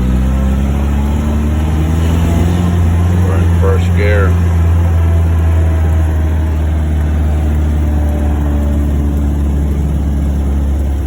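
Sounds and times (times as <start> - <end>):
car engine low drone: 0.0 - 11.0.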